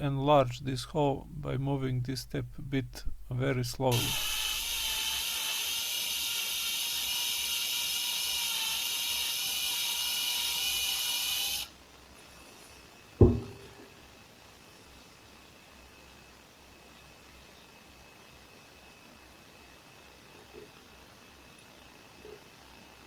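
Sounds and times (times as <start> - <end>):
electric drill whining: 3.9 - 11.8
sharp knock: 13.2 - 13.7.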